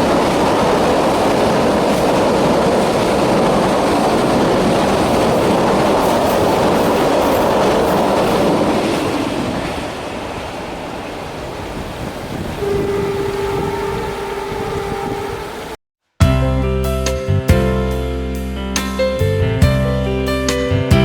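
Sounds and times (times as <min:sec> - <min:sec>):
freight train wheels on rails: 0:00.0 - 0:15.8
long train horn blast: 0:12.4 - 0:15.8.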